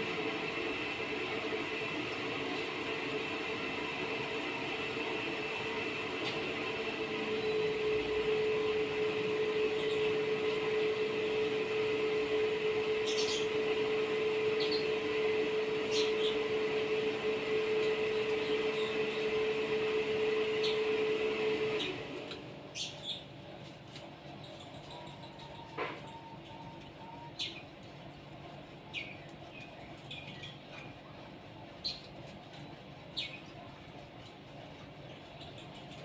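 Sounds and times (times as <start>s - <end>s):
machine drone: 0.0s - 27.8s.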